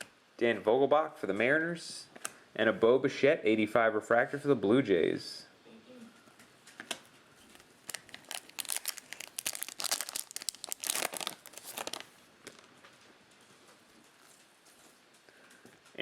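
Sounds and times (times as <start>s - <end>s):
cellophane wrapper crinkling: 7.0s - 12.9s.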